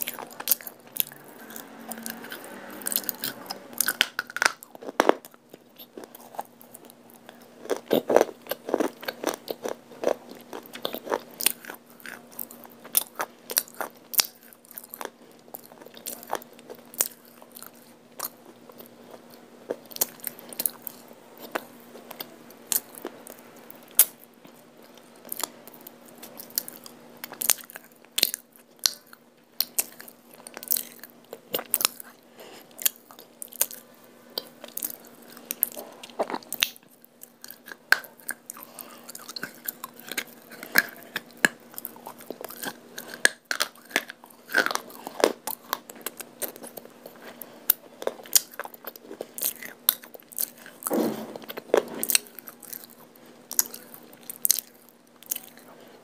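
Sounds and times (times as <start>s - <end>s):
crunchy chewing: 0.0s - 56.0s
faint steady hum: 0.0s - 56.0s.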